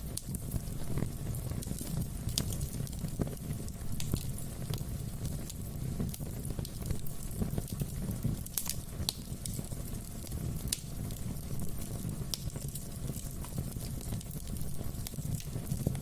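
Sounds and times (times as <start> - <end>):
low rush of flames: 0.0 - 16.0
logs crackling and popping: 0.1 - 16.0.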